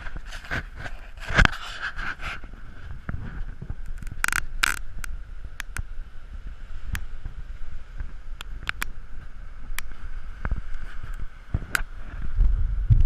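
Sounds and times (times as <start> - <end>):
faint steady hum: 0.0 - 13.0
wind rumble: 0.0 - 13.0
sharp clicks and rattles: 3.8 - 5.8.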